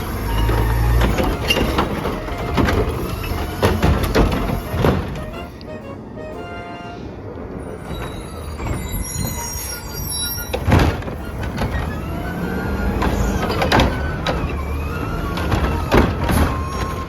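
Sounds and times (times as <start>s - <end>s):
loud metal clanks: 0.0s - 5.5s
truck engine rumbling: 0.0s - 17.0s.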